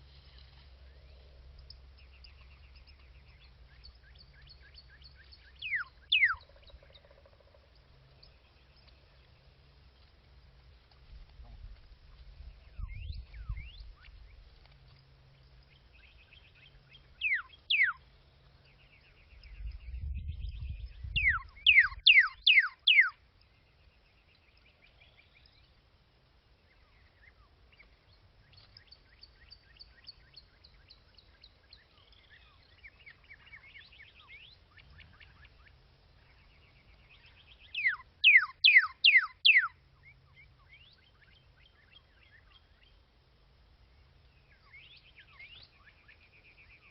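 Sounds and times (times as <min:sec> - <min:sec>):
bird twittering and trills: 0:00.5 - 0:10.1, 0:12.1 - 0:25.8, 0:26.6 - 0:43.1, 0:43.8 - 0:46.9
falling whistled bird calls: 0:05.2 - 0:06.5, 0:17.2 - 0:18.0, 0:21.1 - 0:23.2, 0:37.1 - 0:39.7.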